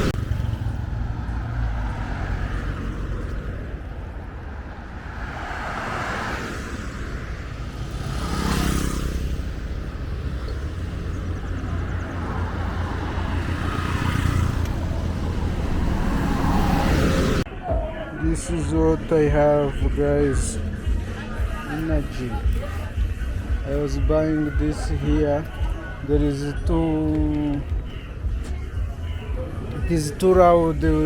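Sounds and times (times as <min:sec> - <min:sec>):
vehicle passing close: 0:00.0 - 0:17.5
rumble of traffic: 0:00.0 - 0:31.0.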